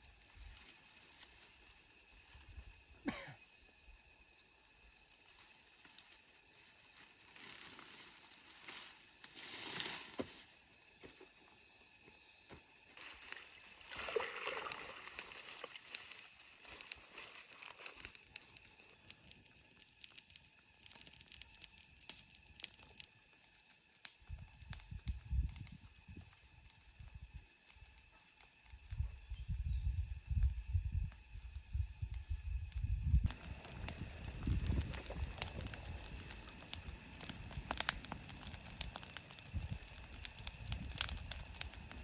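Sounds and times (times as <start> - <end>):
rustling and crinkling: 5.4 - 10.6, 14.6 - 19.5
small clicks and snaps: 15.8 - 29.4, 32.1 - 42.0.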